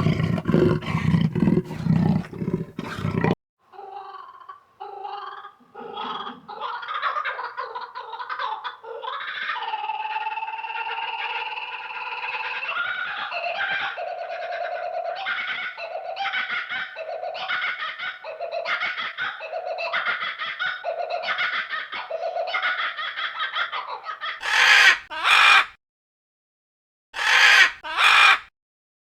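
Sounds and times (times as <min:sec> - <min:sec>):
animal chattering calls: 0:00.0 - 0:03.4, 0:24.4 - 0:25.7, 0:27.2 - 0:28.4
harsh squawks: 0:00.0 - 0:03.4, 0:24.4 - 0:25.7, 0:27.2 - 0:28.5.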